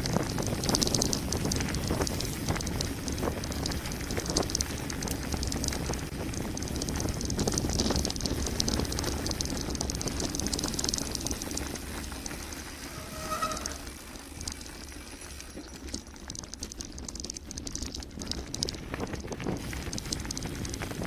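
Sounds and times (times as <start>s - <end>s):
bike rattling over bumps: 0.0s - 21.0s
bike tyres crunching on gravel: 0.0s - 21.0s
brief squeal: 12.8s - 14.1s.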